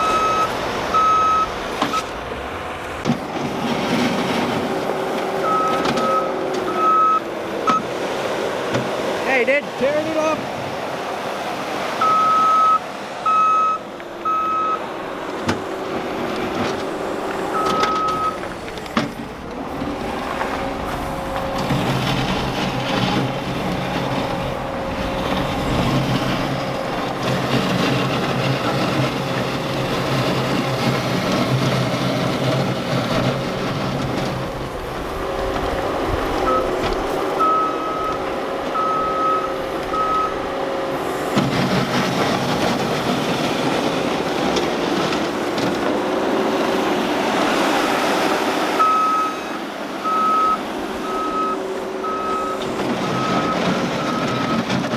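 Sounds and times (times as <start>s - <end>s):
backup alarm beeping: 0.0s - 2.1s, 5.4s - 7.9s, 12.0s - 14.9s, 17.5s - 18.4s, 37.4s - 40.4s, 48.8s - 54.6s
diesel engine running: 0.0s - 54.9s.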